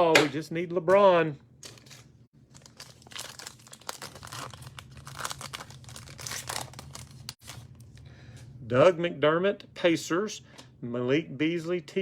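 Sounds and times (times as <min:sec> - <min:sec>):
plastic wrapper tearing and crinkling: 0:01.6 - 0:07.8.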